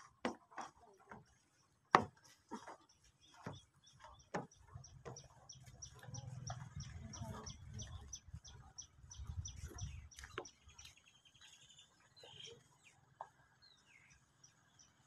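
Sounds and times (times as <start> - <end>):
bird chirping: 2.7 - 15.0.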